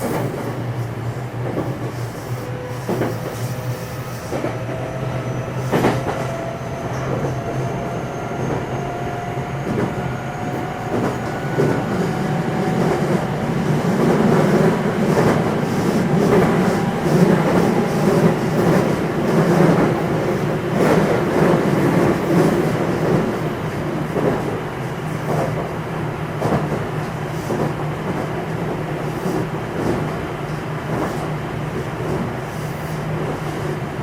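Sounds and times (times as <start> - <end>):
train motor whine: 0.7 - 21.2.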